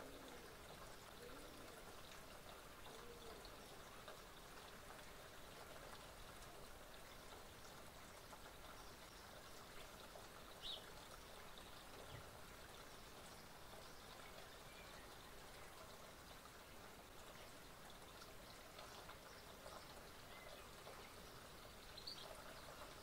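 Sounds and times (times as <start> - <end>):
faint background hiss: 0.0 - 23.0
bird chirp: 10.6 - 10.9, 18.8 - 23.0.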